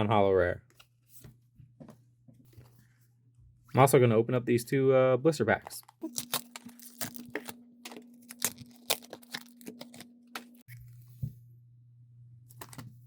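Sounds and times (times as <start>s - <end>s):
plastic packaging crackling: 5.8s - 10.8s.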